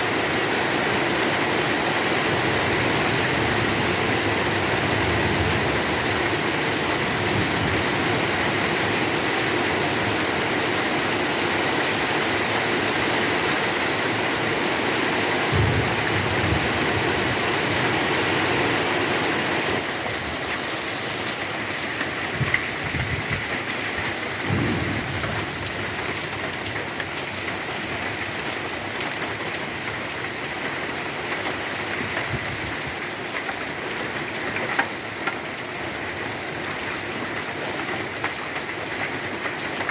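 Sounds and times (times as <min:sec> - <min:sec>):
heavy rain pouring: 0:00.0 - 0:39.9
short low thumps: 0:24.4 - 0:26.7.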